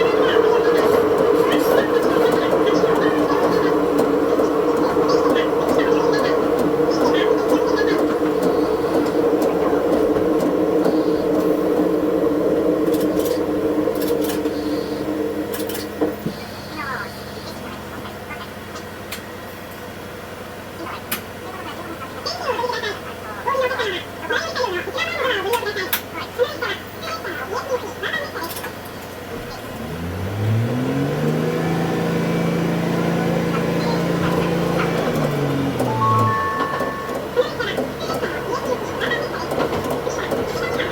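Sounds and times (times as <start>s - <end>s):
train track noise: 0.0s - 20.2s, 32.7s - 40.9s
railcar engine drone: 0.0s - 25.3s, 29.1s - 40.9s.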